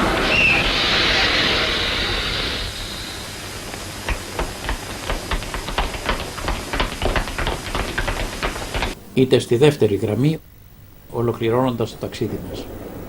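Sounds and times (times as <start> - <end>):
train wheel squeal: 0.0 - 5.0
train rushing hiss: 0.0 - 10.3
regular clicking: 3.6 - 9.0.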